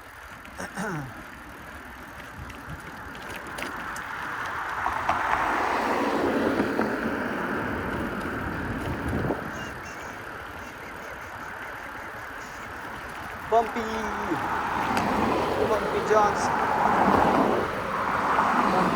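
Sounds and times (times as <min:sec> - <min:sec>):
vehicle driving past: 0:04.0 - 0:09.6, 0:12.7 - 0:18.9.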